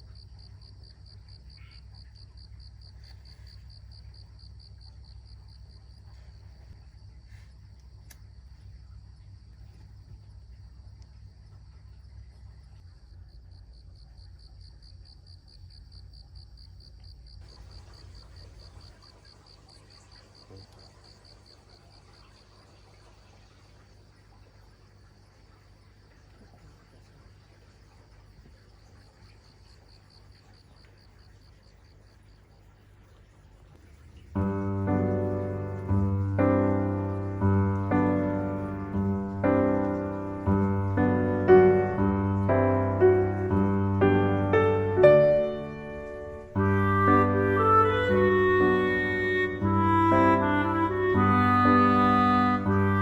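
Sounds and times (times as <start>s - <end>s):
cricket chirping: 0.0s - 53.0s
low hum: 33.8s - 48.8s.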